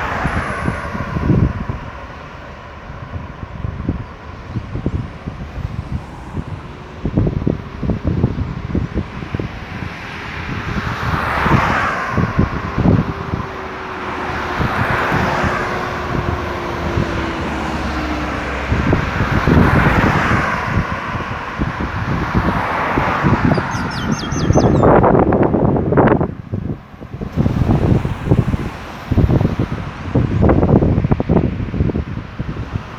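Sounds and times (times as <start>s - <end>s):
falling tone from passing vehicle: 0.0s - 26.4s
cars passing on highway: 0.0s - 32.9s
wind buffeting microphone: 0.0s - 32.9s.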